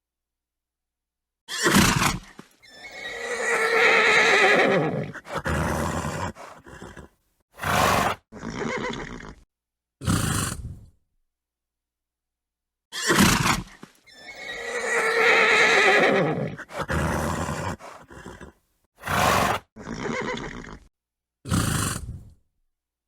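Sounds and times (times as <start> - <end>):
horse whinnying: 1.5 - 9.4, 12.9 - 20.9
horse snorting: 1.6 - 9.4, 10.0 - 10.9, 13.1 - 20.9, 21.5 - 22.4.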